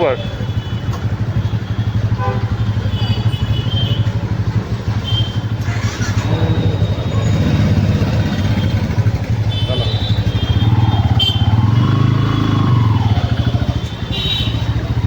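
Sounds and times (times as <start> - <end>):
motorcycle engine idling: 0.0 - 15.0
street traffic: 0.0 - 15.0
vehicle passing: 10.2 - 13.6.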